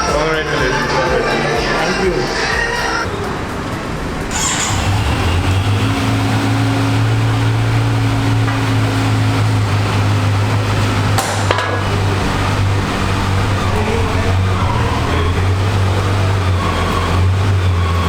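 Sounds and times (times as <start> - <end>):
motorcycle engine starting and idling: 2.6 - 18.0.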